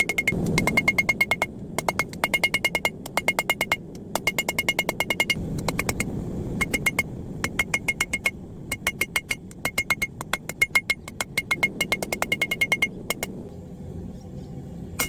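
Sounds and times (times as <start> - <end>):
hammer striking steel on anvil: 0.0 - 13.3.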